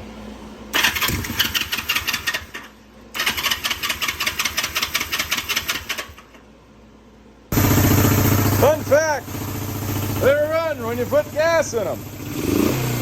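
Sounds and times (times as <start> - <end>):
motorcycle engine cranking: 0.8 - 6.4.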